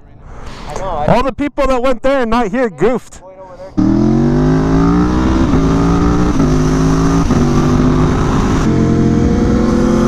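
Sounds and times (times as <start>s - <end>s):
motorcycle engine accelerating: 3.8s - 10.0s.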